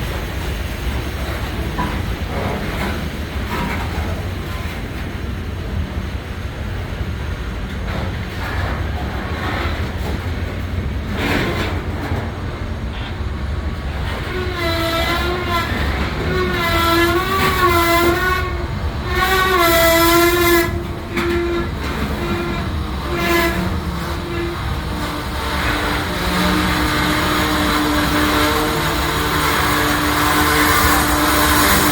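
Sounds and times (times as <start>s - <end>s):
diesel locomotives idling: 0.0s - 31.9s
locomotive horn blasts: 13.9s - 31.9s.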